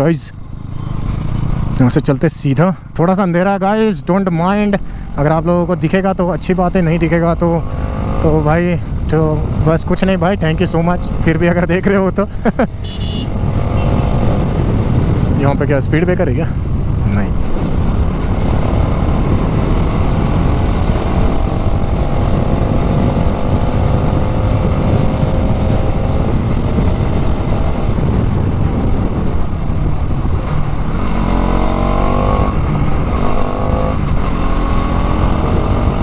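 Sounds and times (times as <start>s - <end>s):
motorcycle engine revving: 0.4s - 1.9s, 12.6s - 15.4s, 16.6s - 36.0s
wind rush: 4.6s - 36.0s.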